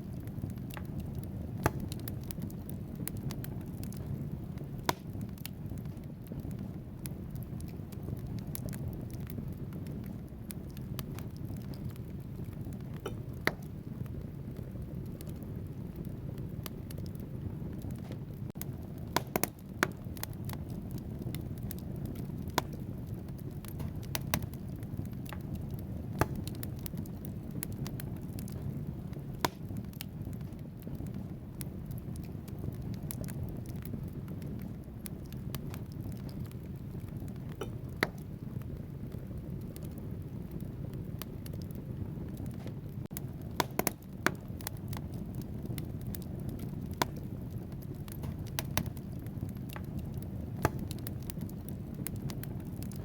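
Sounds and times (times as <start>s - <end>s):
fire flames rushing: 0.0s - 53.0s
logs crackling and popping: 0.0s - 53.0s.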